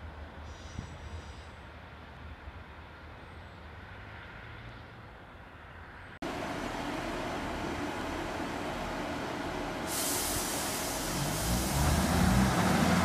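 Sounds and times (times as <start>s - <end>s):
diesel train running at platform: 5.4s - 13.0s
distant diesel train rumble: 5.8s - 13.0s.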